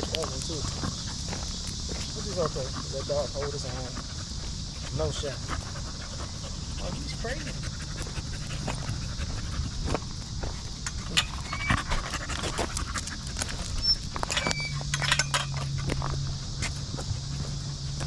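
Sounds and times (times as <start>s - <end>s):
dog panting: 0.3s - 14.0s.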